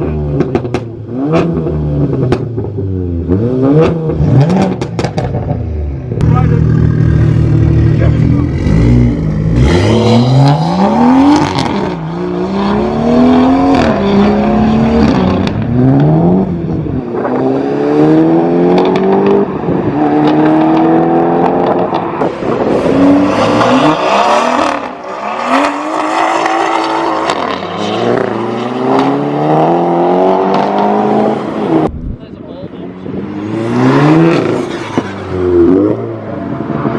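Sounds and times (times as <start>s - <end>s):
car engine accelerating through gears: 6.8s - 31.9s.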